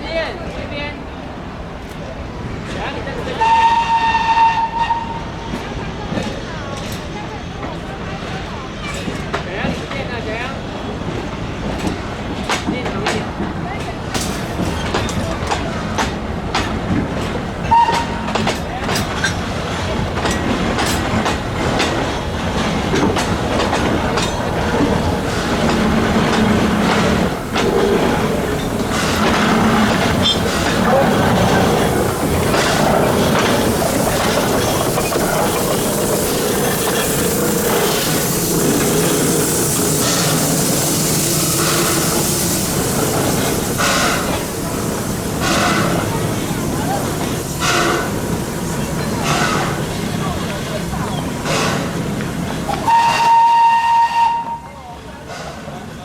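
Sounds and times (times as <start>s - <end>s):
steam locomotive running: 0.0s - 56.0s
steam hiss: 17.7s - 54.7s.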